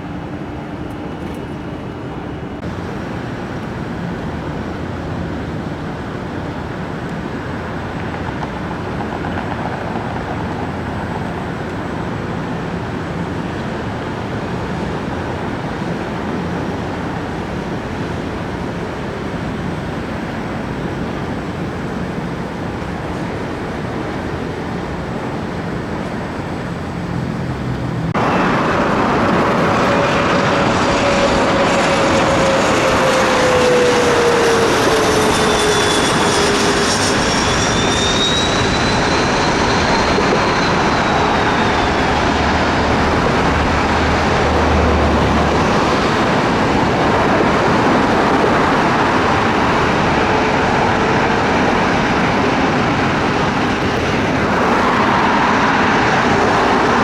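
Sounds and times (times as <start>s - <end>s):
jet airliner engines passing: 0.0s - 57.0s.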